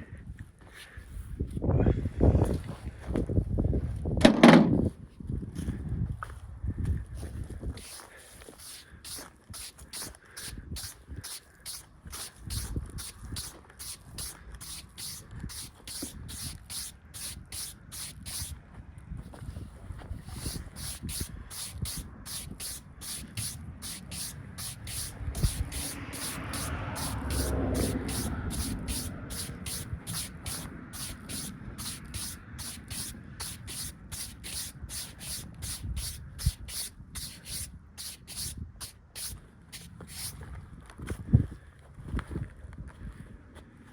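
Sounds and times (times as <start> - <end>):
thump: 4.2 - 4.8
brush sweeping over wood: 7.8 - 18.6, 20.2 - 40.4.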